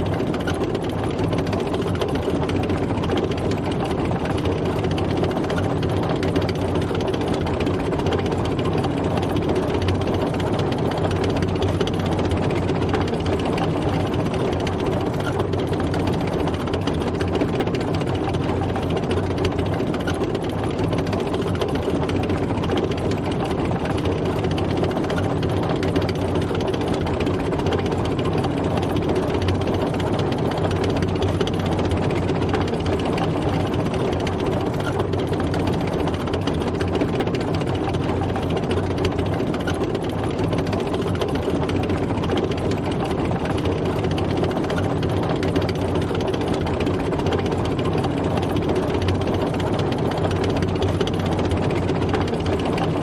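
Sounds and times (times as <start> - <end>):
tank engine running: 0.0 - 53.0.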